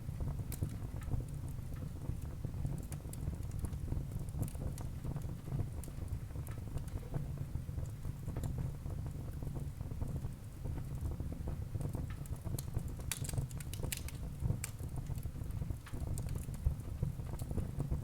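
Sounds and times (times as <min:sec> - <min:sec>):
low rumble of flames: 0:00.0 - 0:18.0
burning logs crackling and popping: 0:00.1 - 0:18.0.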